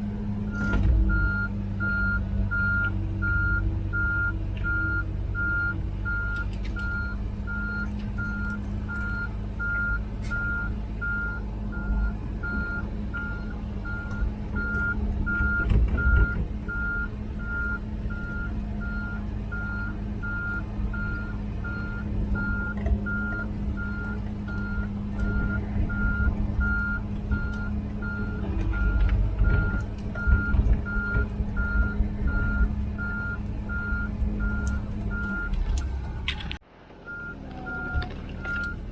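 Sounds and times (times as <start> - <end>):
diesel engine running: 0.0 - 38.9
travel alarm beeping: 0.5 - 36.2.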